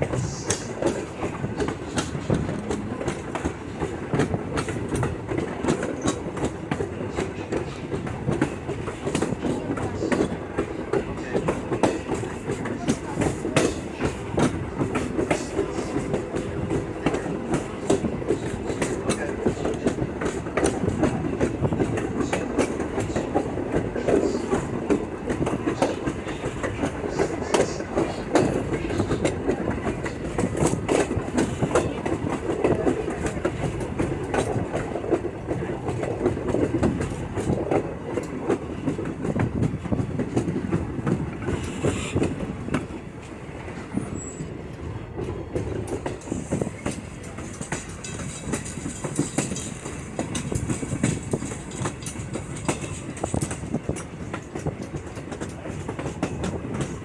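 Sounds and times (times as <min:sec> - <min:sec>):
train car rumbling on track: 0:00.0 - 0:57.0
wheels clicking over rails: 0:45.2 - 0:57.0.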